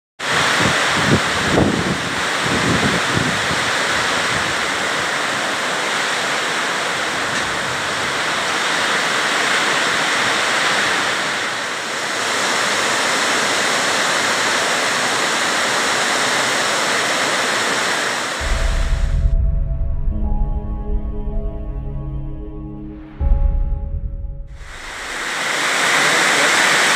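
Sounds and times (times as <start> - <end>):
heavy rain pouring: 0.2 - 21.1, 23.1 - 26.9
wind buffeting microphone: 0.3 - 4.7, 18.4 - 21.0.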